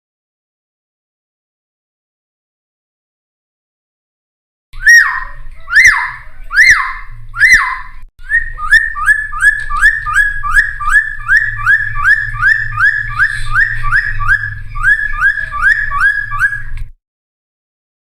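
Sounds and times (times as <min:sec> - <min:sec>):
bird whistling song: 0:04.8 - 0:16.8.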